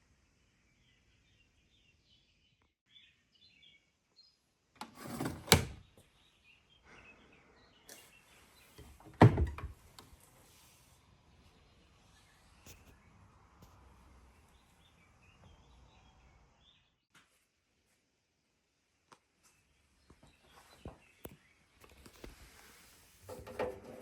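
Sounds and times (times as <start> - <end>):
faint bird chirping: 0.0 - 4.6, 5.8 - 9.1, 11.0 - 17.1.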